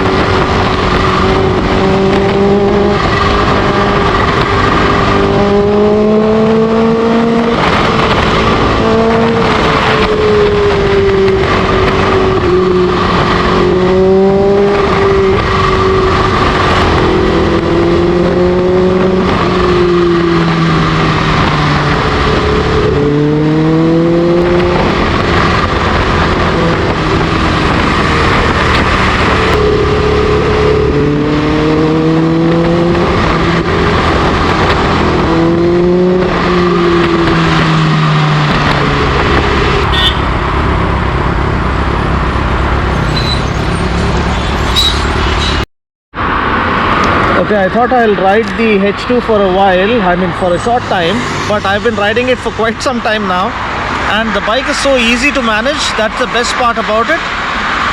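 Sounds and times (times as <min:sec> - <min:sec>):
motorcycle engine revving: 0:00.0 - 0:45.6.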